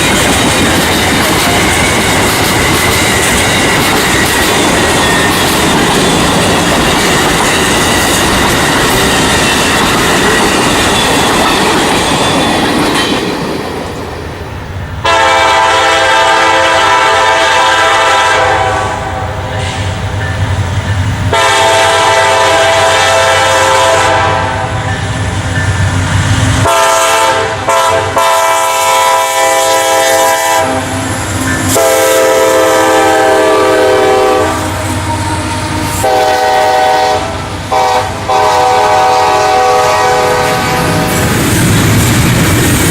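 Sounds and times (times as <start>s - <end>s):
train wheels clicking over rail joints: 0.0s - 15.1s, 19.4s - 26.7s, 28.0s - 38.5s, 39.2s - 42.9s
locomotive air horn blasts: 15.0s - 20.0s, 21.3s - 24.9s, 26.6s - 41.0s.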